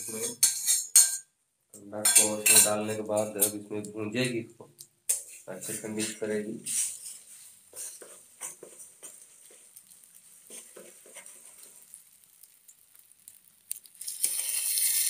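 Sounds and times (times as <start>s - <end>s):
egg sizzling in hot oil: 0.0s - 1.2s, 4.8s - 15.0s
spoon scraping and tapping pan: 0.0s - 1.2s, 2.0s - 3.7s, 5.1s - 12.0s.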